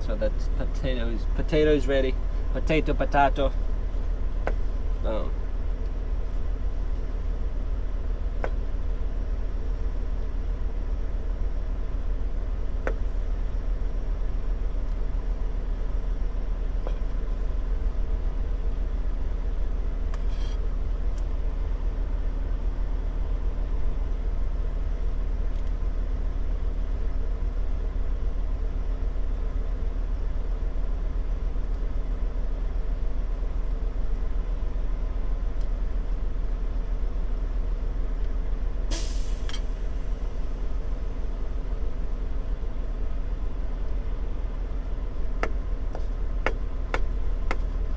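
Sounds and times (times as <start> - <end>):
diesel truck engine idling: 0.0 - 47.9.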